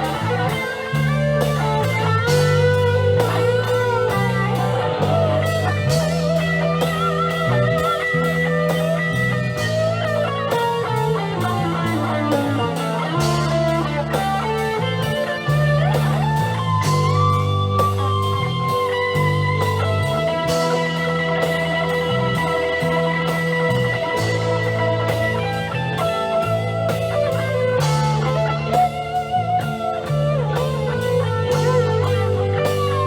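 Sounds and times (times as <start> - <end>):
bass guitar: 0.0 - 33.0
drum kit beat: 0.0 - 33.0
lead electric guitar: 0.0 - 33.0.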